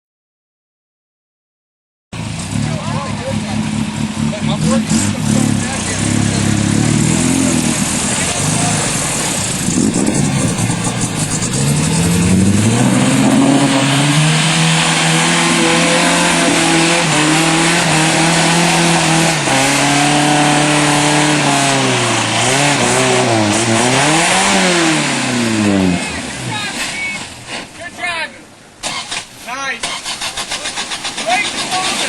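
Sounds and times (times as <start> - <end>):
truck engine revving hard: 2.2 - 27.8, 28.8 - 32.0.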